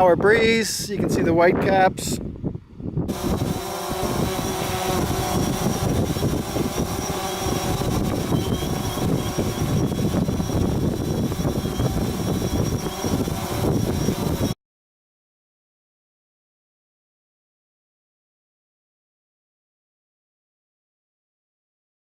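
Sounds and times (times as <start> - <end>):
wind buffeting microphone: 0.0 - 14.6
drone propellers whining: 3.0 - 14.6.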